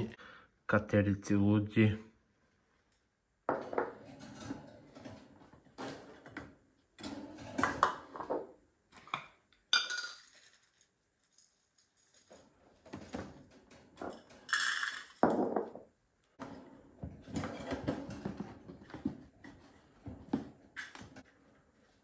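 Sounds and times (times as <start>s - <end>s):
dishes clinking and clattering: 3.5s - 10.7s, 16.4s - 21.3s.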